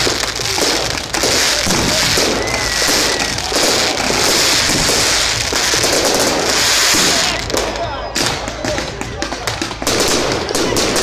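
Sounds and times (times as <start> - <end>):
firework whistle: 0.0 - 7.5
fireworks bangs and crackling: 0.0 - 11.0.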